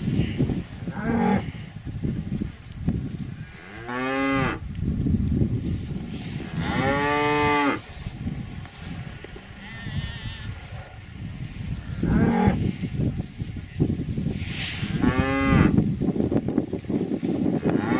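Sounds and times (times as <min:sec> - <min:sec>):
low steady rustling: 0:00.0 - 0:17.9
cows mooing: 0:06.5 - 0:08.1, 0:09.1 - 0:11.0, 0:11.9 - 0:12.7, 0:15.0 - 0:15.8.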